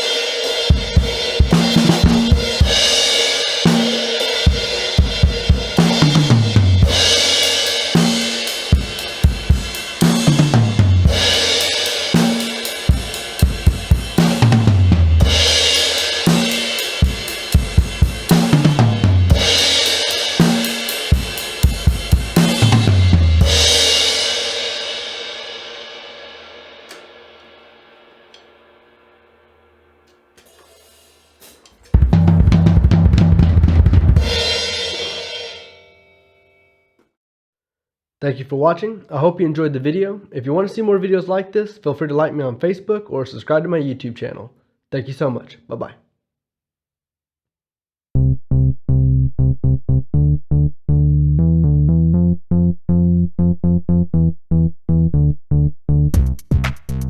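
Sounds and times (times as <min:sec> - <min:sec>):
drum fill: 0:00.7 - 0:27.7, 0:30.4 - 0:35.3, 0:51.4 - 0:57.0
bass drum runs: 0:06.0 - 0:07.4, 0:08.8 - 0:11.6, 0:13.0 - 0:16.4, 0:17.0 - 0:24.2, 0:32.0 - 0:34.8, 0:48.2 - 0:57.0
cymbal crash ringing: 0:06.8 - 0:14.5, 0:15.2 - 0:22.8, 0:23.4 - 0:32.3, 0:34.2 - 0:36.2
synthesizer low short notes: 0:48.2 - 0:57.0.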